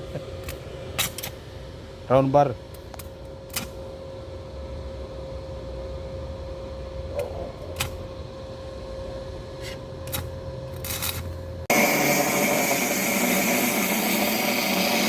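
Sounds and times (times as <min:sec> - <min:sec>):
machine hum with thin tone: 0:00.0 - 0:15.0.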